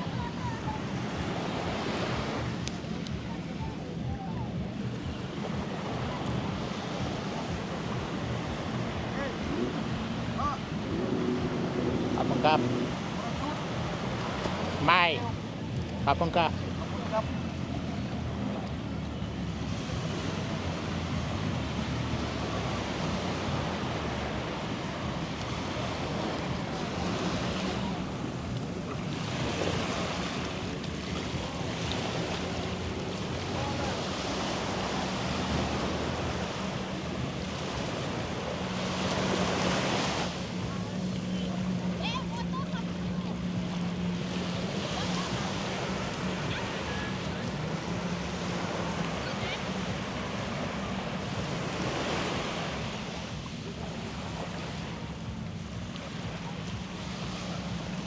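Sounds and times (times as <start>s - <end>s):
wind on microphone: 0.0s - 16.1s
boat engine humming: 0.0s - 58.0s
surf washing on beach: 0.0s - 58.0s.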